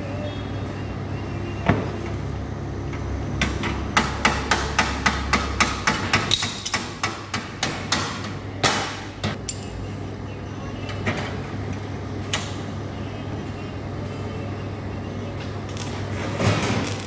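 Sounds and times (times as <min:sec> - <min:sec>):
hammer striking metal: 0:03.4 - 0:09.7.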